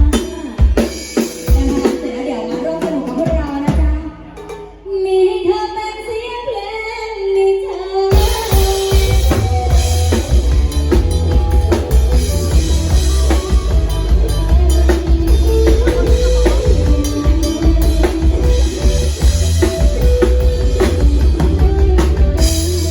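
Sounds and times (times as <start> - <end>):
drum kit steady beat: 0.0 - 4.8, 8.1 - 22.9
heavy bass: 8.2 - 22.9.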